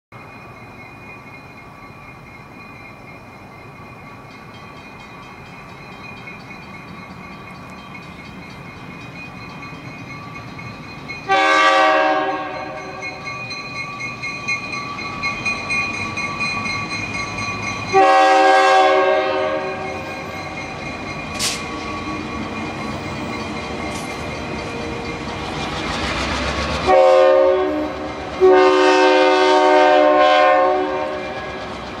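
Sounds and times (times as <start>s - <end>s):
train rumble: 0.2s - 32.0s
locomotive air horn blasts: 11.3s - 13.0s, 17.9s - 19.8s, 26.8s - 31.6s.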